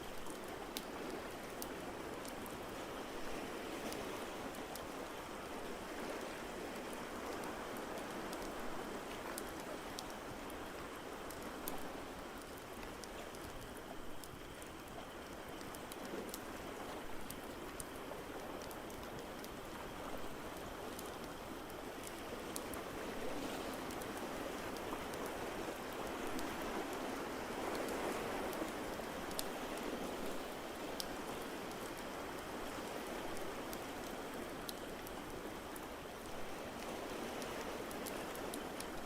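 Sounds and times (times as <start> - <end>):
rushing water: 0.0 - 39.0.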